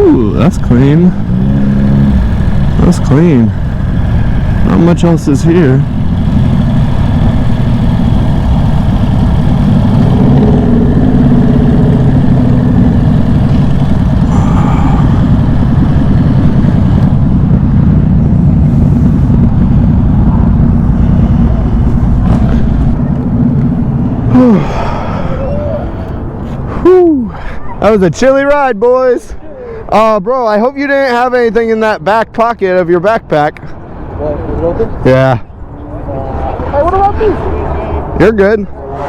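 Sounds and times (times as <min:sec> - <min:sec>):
motorcycle engine rumbling: 0:00.0 - 0:27.0.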